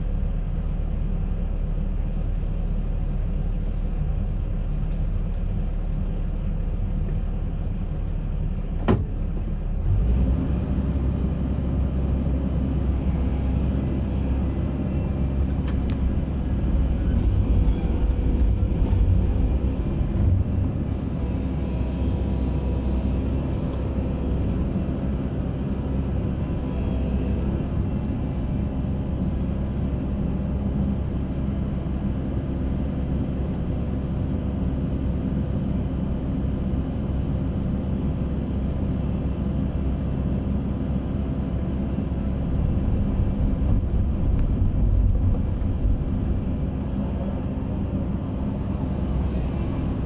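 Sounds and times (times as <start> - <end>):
concrete mixer rumbling: 42.5 - 50.0.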